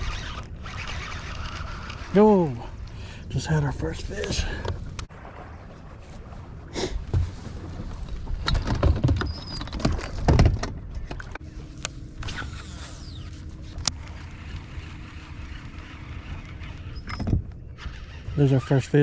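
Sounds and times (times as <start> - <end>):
fishing gear knocks and rustles: 7.1 - 11.4.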